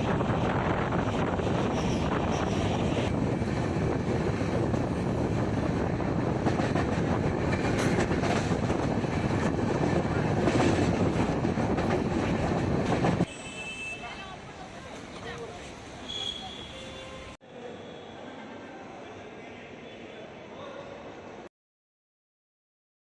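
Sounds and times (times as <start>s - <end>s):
wind noise: 0.0s - 13.3s
train rumbling on rails: 0.0s - 17.4s.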